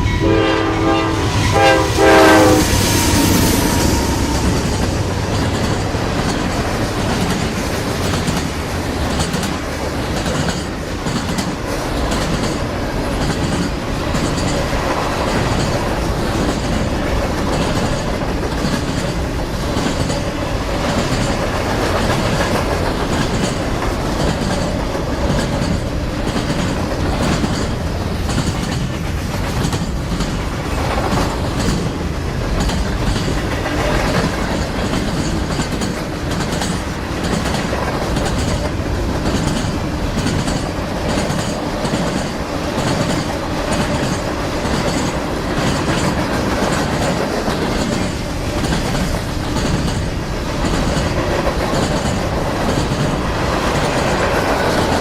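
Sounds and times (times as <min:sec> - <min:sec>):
train wheels clicking on rails: 0:00.0 - 0:55.0.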